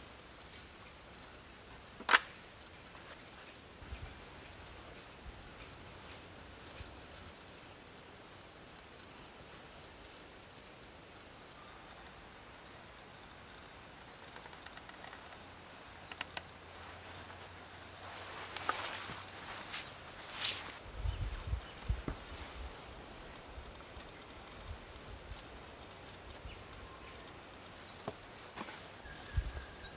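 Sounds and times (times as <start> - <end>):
birds chirping: 20.8 - 28.4.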